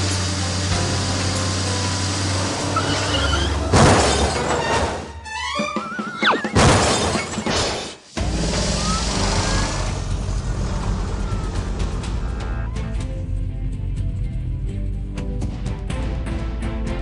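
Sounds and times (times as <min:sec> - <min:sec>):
cartoon background music: 0:00.6 - 0:17.0
loud crash: 0:03.7 - 0:05.1, 0:06.5 - 0:09.9
wobbling gliding whistle effects: 0:05.6 - 0:06.6
loud noisy bursts: 0:08.1 - 0:12.1.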